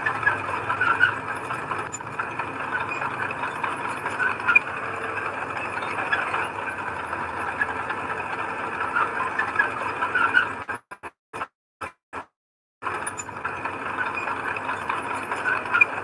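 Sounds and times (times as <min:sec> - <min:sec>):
sharp metallic squeaks: 0:00.0 - 0:08.2, 0:08.8 - 0:10.8, 0:14.0 - 0:16.0
heavy machinery engine rattling: 0:00.0 - 0:10.6, 0:12.8 - 0:16.0.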